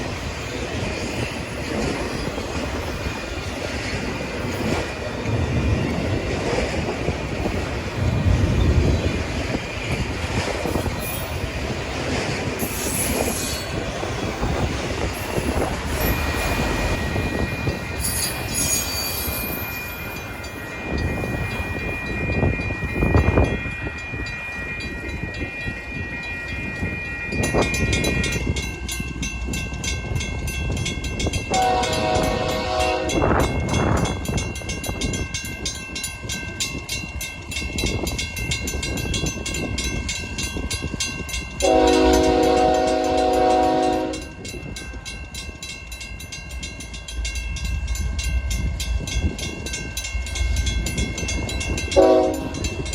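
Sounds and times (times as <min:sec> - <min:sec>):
high wheel squeal: 0:12.6 - 0:14.5, 0:15.1 - 0:28.3
locomotive air horn: 0:31.5 - 0:33.3, 0:41.6 - 0:44.3, 0:52.0 - 0:52.6.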